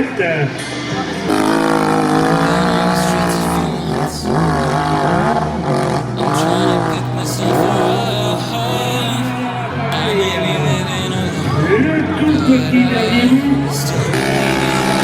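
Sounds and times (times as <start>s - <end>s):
motorcycle engines revving: 0.6s - 8.0s.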